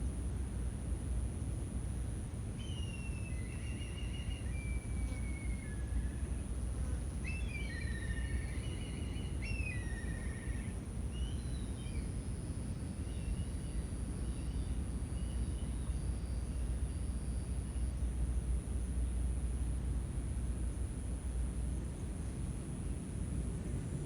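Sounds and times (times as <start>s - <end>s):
songbird singing trills: 2.6s - 6.4s, 7.2s - 12.2s.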